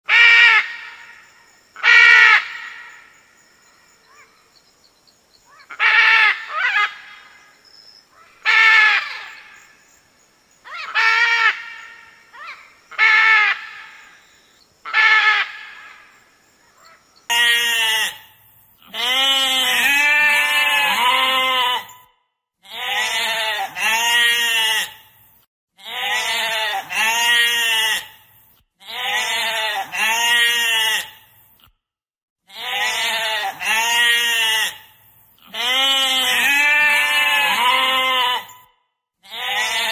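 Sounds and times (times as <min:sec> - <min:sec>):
macaw squawking: 0:05.5 - 0:07.2
sheep bleating: 0:17.3 - 0:22.0, 0:22.6 - 0:25.0, 0:25.8 - 0:28.2, 0:28.8 - 0:31.2, 0:32.5 - 0:38.6, 0:39.2 - 0:39.9.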